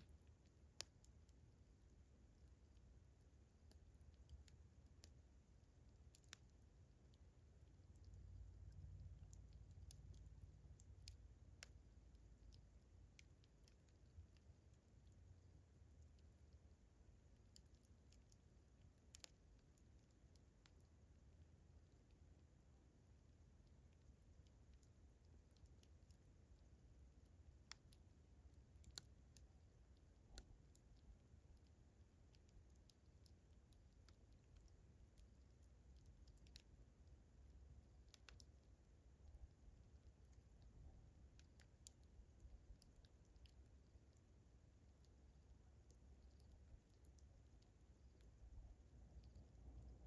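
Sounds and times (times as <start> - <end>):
low steady rumble: 0.0 - 50.0
campfire crackling: 19.1 - 19.3.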